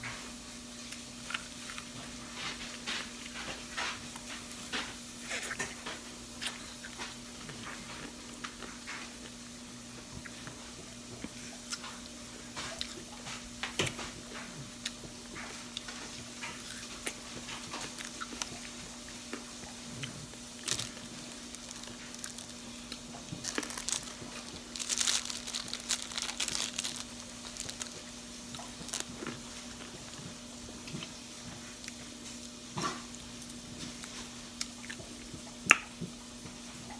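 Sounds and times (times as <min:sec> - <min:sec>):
candy apple crunching: 0:00.9 - 0:03.6, 0:14.8 - 0:35.9.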